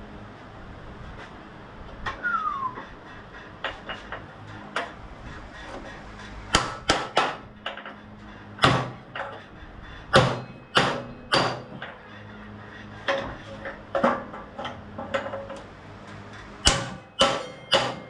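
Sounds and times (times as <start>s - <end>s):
hammer striking metal: 6.5s - 8.0s, 8.6s - 9.4s, 10.1s - 12.0s, 16.6s - 18.0s.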